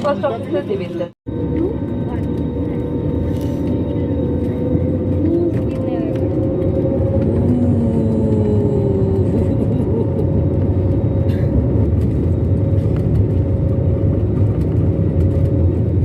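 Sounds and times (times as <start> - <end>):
airliner engine rumble in cabin: 0.0 - 16.0
constant tone: 0.0 - 16.0.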